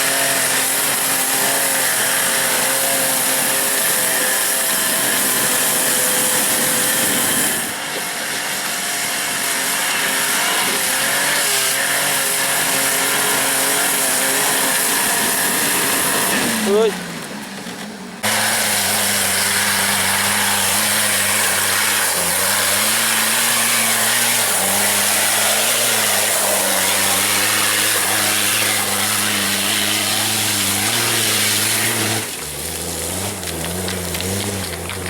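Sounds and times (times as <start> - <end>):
engine at high revs: 0.0 - 17.3, 18.2 - 35.0.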